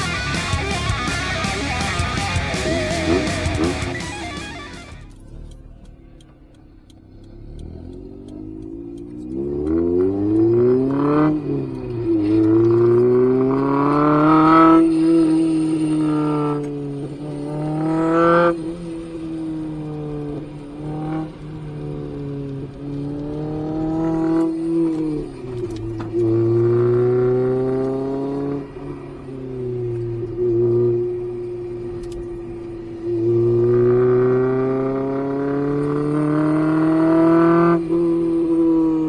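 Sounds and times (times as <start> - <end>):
car engine revving through gears: 0.0 - 39.0.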